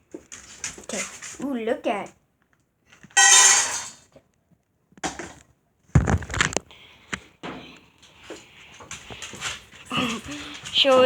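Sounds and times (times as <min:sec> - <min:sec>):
knocks on hard surface: 0:06.0 - 0:06.5.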